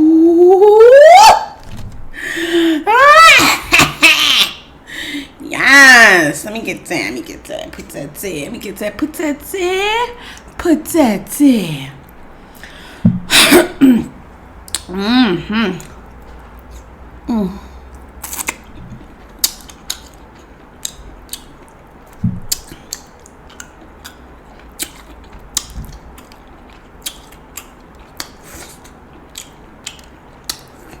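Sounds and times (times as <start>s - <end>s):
eating sounds: 17.6s - 31.0s.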